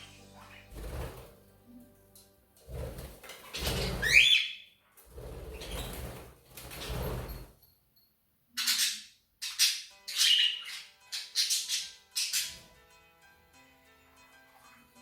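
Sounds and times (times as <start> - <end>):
budgies chirping and squawking: 0.0 - 1.2, 3.2 - 4.6, 5.4 - 6.2, 8.6 - 12.8.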